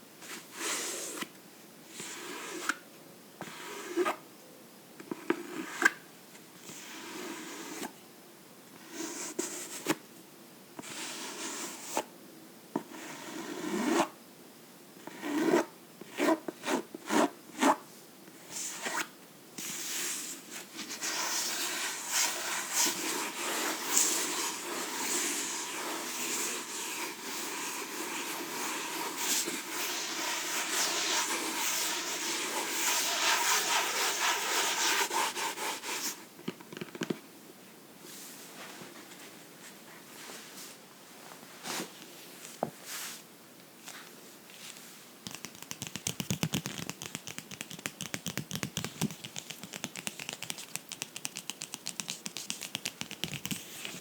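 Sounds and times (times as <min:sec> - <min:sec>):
strokes on a book: 0:19.6 - 0:36.2, 0:44.6 - 0:54.0
scratching on a book: 0:21.0 - 0:36.2, 0:45.2 - 0:54.0
tapping on a book: 0:45.3 - 0:53.9.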